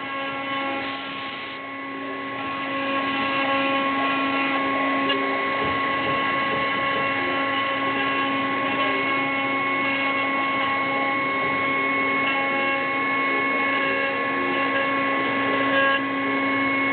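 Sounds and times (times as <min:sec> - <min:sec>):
milling machine spindle whine: 0:00.0 - 0:16.9.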